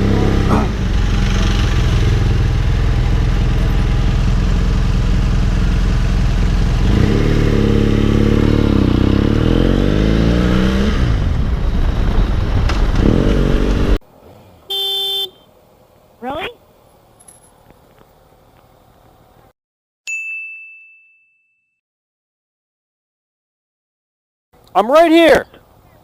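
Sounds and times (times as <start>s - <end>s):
motorcycle engine: 0.0s - 14.0s
wind noise: 11.0s - 13.9s.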